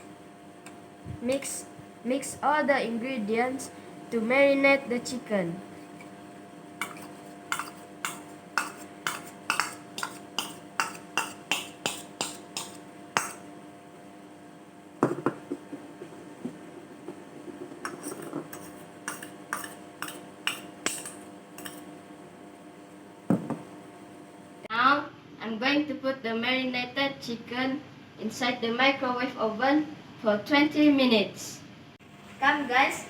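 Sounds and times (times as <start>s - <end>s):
utensil clinking against bowl: 6.8s - 13.5s, 17.8s - 21.9s.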